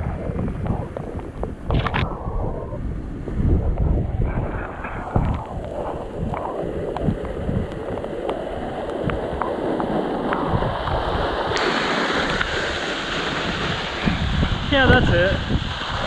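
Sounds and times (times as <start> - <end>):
wind buffeting microphone: 0.0 - 16.0
rushing stream water: 5.4 - 16.0.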